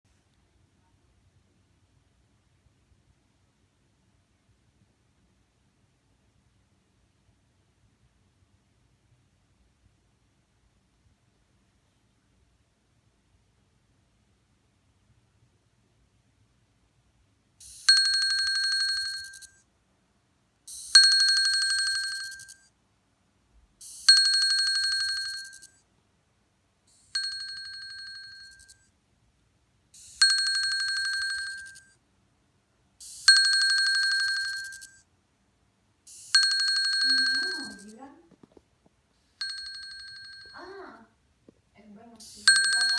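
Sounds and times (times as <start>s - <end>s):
watch vibrating with buzzing rattle: 17.6s - 19.6s, 20.7s - 22.7s, 23.8s - 25.8s, 26.9s - 28.8s, 30.0s - 31.9s, 33.0s - 35.0s, 36.1s - 38.0s.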